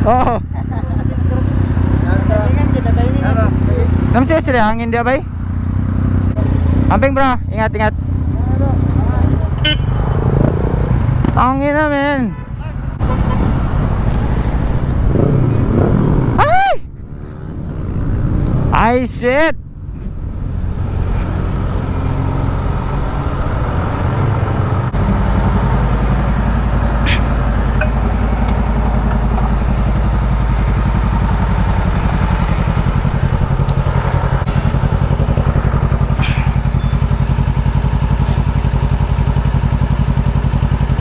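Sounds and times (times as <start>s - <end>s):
motorcycle engine idling: 8.0s - 10.0s, 25.0s - 41.0s.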